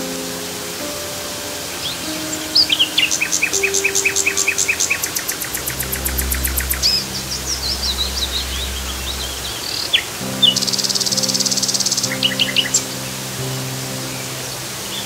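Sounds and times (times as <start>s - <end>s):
rush of falling water: 0.0s - 15.0s
soft low music notes: 0.0s - 15.0s
songbirds trilling and chirping: 0.8s - 15.0s.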